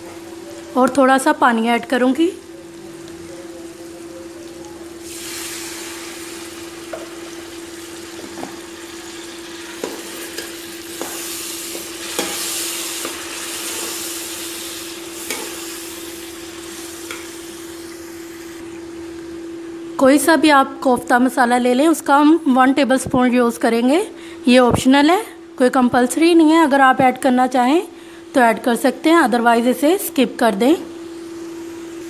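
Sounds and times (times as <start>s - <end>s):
food sizzling in a pot: 0.0s - 20.4s, 29.7s - 32.0s.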